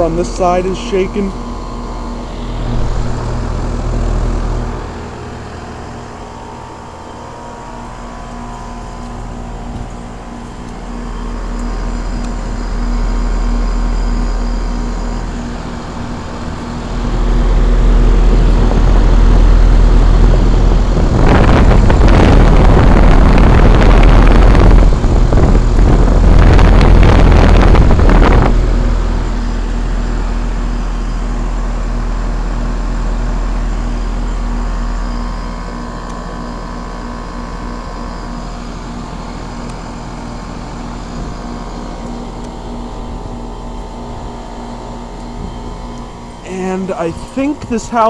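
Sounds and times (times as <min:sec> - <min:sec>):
heat pump compressor hum: 0:00.0 - 0:48.0
loud rushing rumble: 0:01.3 - 0:06.6.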